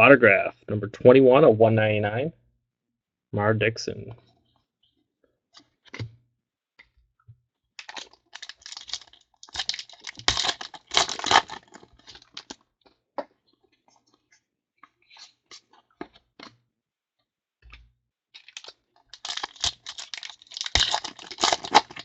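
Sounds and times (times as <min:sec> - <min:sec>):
foil wrapper crinkling and tearing: 0:07.8 - 0:12.6, 0:18.4 - 0:22.0.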